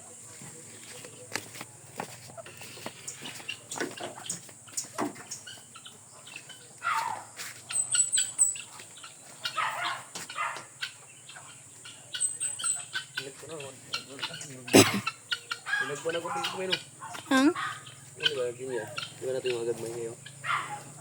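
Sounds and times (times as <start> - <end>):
scuffling: 0.0 - 5.7, 6.3 - 10.5
chickens clucking: 0.0 - 21.0.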